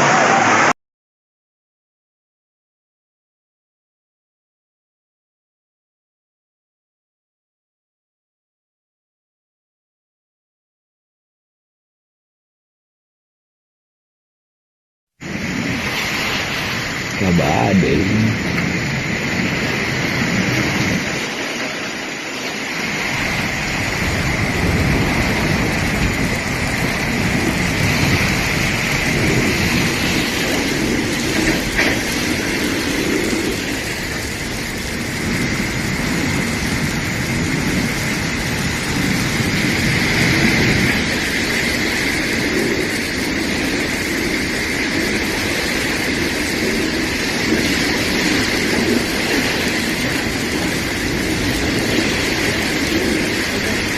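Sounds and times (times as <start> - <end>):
heavy rain: 15.2 - 53.9
rushing floodwater: 15.2 - 53.9
low rumbling: 17.1 - 19.6.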